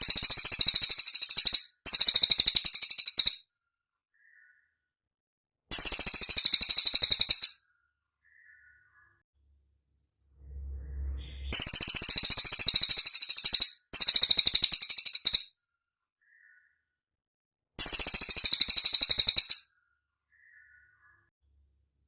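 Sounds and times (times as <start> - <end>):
low rumble: 10.0 - 12.3.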